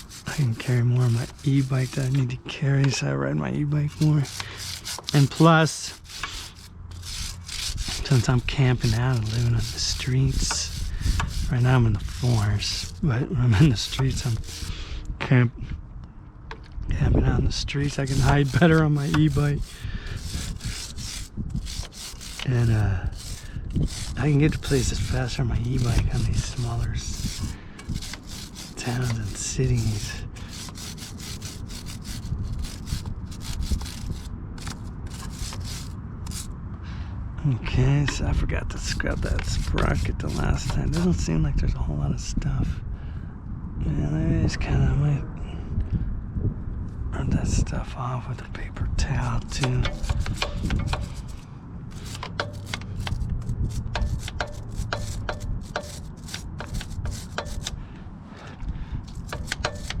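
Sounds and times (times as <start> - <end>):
brush scrubbing a chain: 0.0 - 2.4, 3.8 - 14.7, 17.6 - 36.5, 38.8 - 41.2, 49.3 - 57.8, 59.0 - 60.0.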